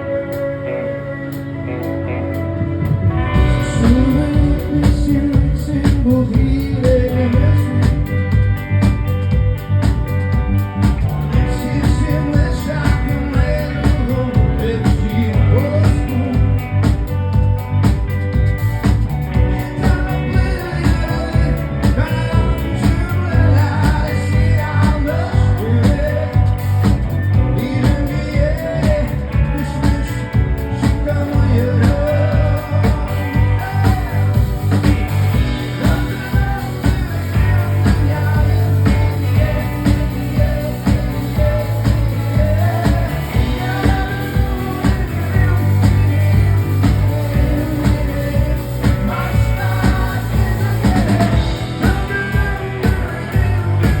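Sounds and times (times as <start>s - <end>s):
live rock band: 0.0s - 54.0s
person singing melody: 30.9s - 54.0s.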